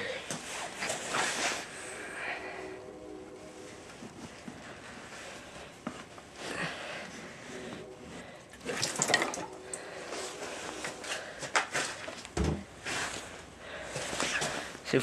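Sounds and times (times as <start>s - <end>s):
gasoline pouring trickle: 8.5s - 9.9s.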